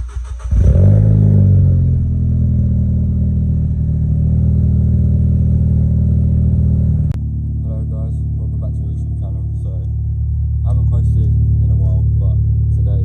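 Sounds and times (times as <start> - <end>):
car engine starting and idling: 0.0 - 13.0.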